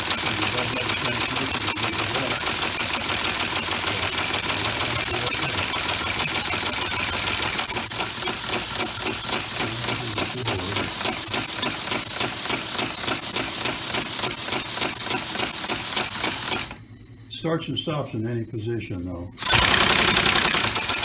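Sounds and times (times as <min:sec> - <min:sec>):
compressed-air engine puffing: 0:00.0 - 0:16.8, 0:19.4 - 0:21.0.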